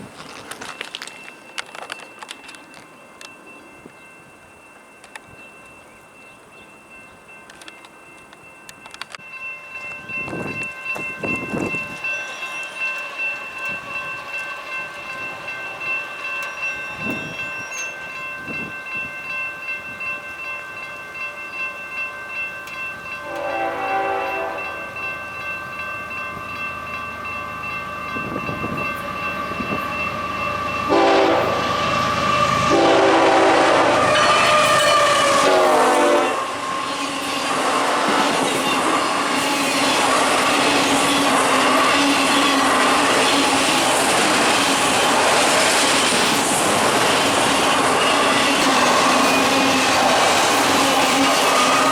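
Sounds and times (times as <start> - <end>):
crossing bell ringing: 0.0 - 51.9
train wheels on rails: 0.0 - 51.9
locomotive air horn blasts: 23.2 - 24.8, 30.9 - 36.5.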